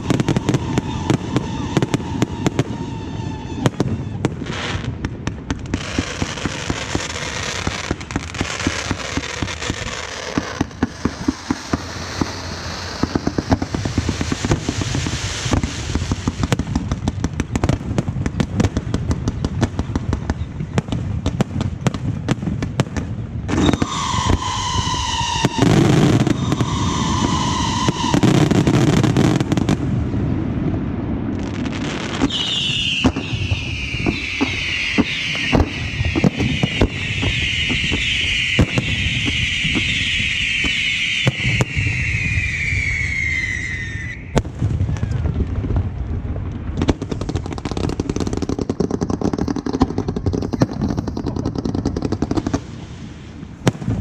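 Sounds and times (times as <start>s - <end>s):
fireworks whistling: 0.0s - 17.8s, 23.5s - 30.0s, 31.4s - 45.4s
fireworks crackling and popping: 0.0s - 54.0s.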